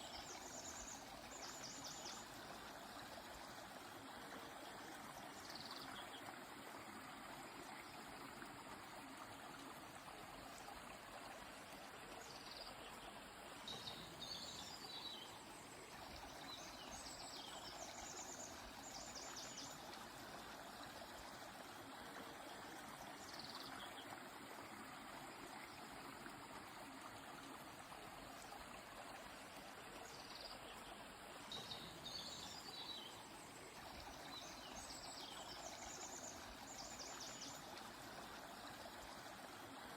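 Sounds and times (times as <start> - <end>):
river flowing softly: 0.0 - 39.9.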